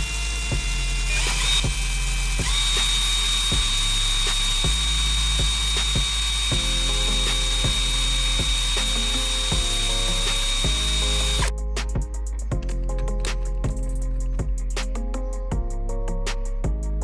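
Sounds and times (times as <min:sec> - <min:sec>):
loud hiss with high whine: 0:00.0 - 0:11.5
background music with beat: 0:00.0 - 0:17.0.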